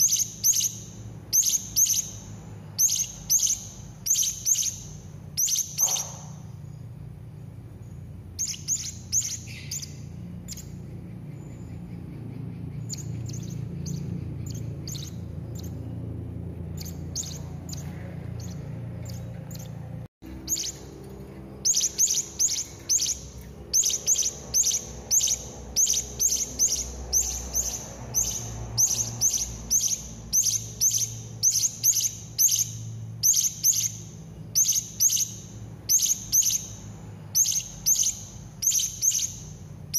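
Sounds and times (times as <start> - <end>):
parrot shrill chirps: 0.0 - 6.5, 8.4 - 10.7, 21.6 - 36.8, 37.4 - 39.6
steady low hum: 0.0 - 39.9.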